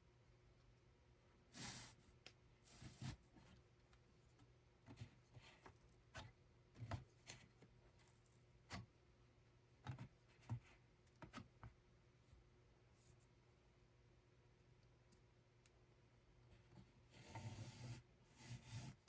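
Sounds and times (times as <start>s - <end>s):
faint clicks and taps: 3.4s - 9.0s, 9.8s - 11.8s.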